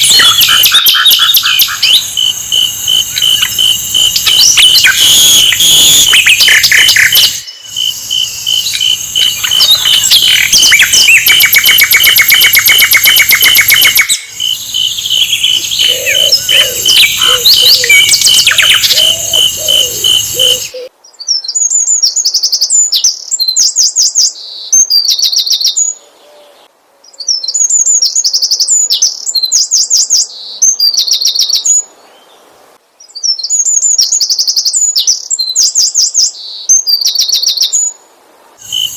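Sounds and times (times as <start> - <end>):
bird chirping trills: 0.0 - 20.9, 38.6 - 38.9.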